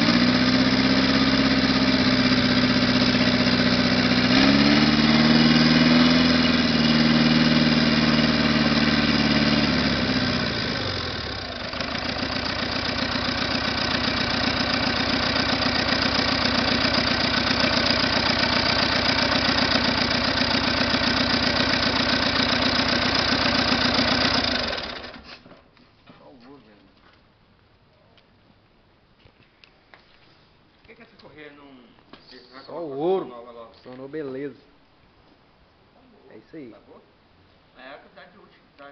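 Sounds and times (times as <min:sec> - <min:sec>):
diesel engine revving and idling: 0:00.0 - 0:25.4.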